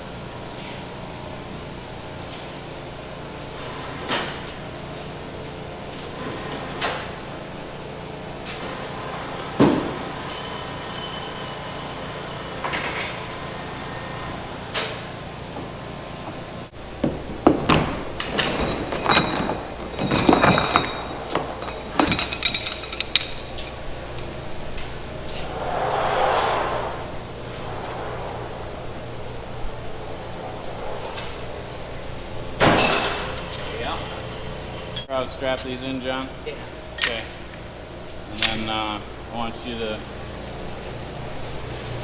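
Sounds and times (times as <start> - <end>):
metal knocks and clanks: 17.0 - 23.7
steady low hum: 20.9 - 32.6.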